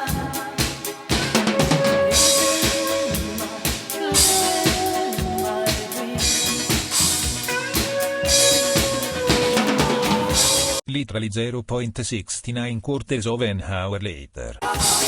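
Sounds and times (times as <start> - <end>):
cymbal crashes: 0.0 - 10.8, 14.6 - 15.0
drum kit beat: 0.0 - 10.8, 14.6 - 15.0
recorded song: 0.0 - 10.8, 14.6 - 15.0.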